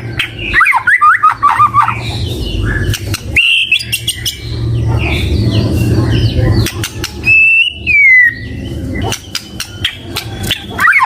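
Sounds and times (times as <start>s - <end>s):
low rumbling noise: 0.0s - 10.8s
high bird chirps: 0.0s - 11.0s
bird singing whistled phrases: 0.4s - 2.0s, 3.4s - 4.4s, 7.2s - 8.6s.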